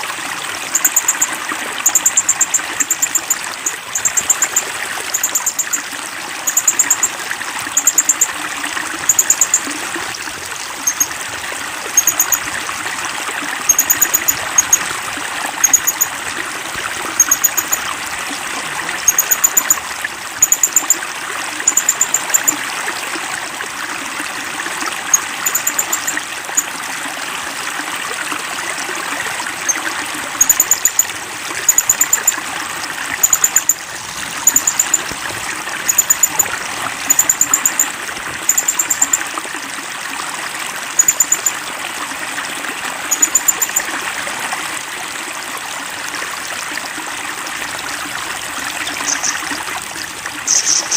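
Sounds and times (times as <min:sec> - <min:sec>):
running water: 0:00.0 - 0:50.9
songbird chirping: 0:01.9 - 0:04.6, 0:49.0 - 0:49.4, 0:50.5 - 0:50.9.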